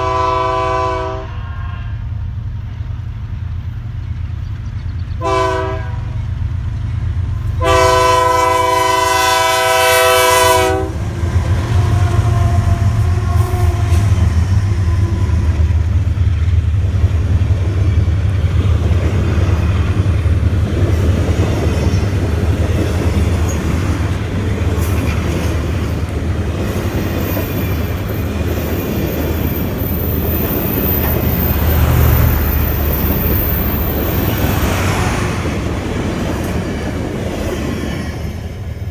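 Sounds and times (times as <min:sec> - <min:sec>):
locomotive horn blast: 0:00.0 - 0:02.1, 0:05.2 - 0:06.3, 0:07.5 - 0:11.1, 0:11.7 - 0:15.7
locomotive engine rumbling: 0:00.0 - 0:38.9
train wheels clickety-clack: 0:06.5 - 0:38.9.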